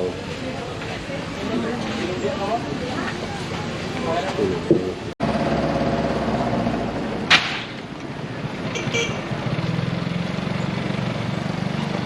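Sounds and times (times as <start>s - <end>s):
street noise: 0.0s - 12.0s
sharp clack: 7.3s - 7.9s.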